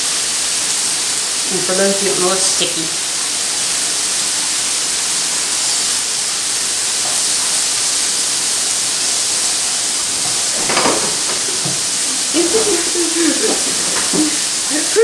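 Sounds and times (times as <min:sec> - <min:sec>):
vegetables sizzling in frying pan: 0:00.0 - 0:15.0.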